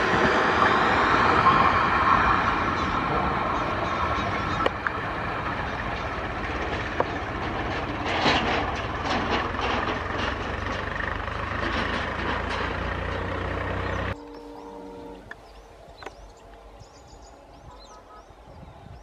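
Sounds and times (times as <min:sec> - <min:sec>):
train wheels clattering on rails: 0:00.0 - 0:14.4
diesel locomotive drone: 0:00.0 - 0:19.0
faint held tone: 0:14.2 - 0:15.4.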